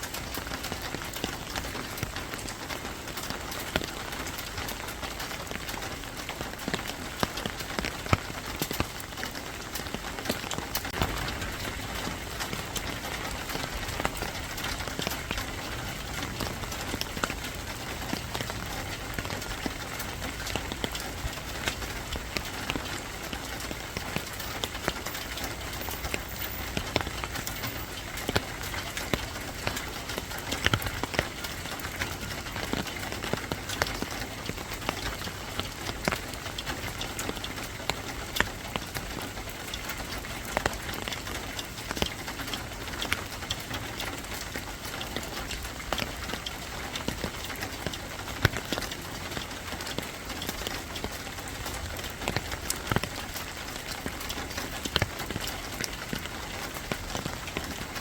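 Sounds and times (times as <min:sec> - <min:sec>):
rain falling: 0:00.0 - 0:58.0
raindrops striking a surface: 0:00.0 - 0:58.0.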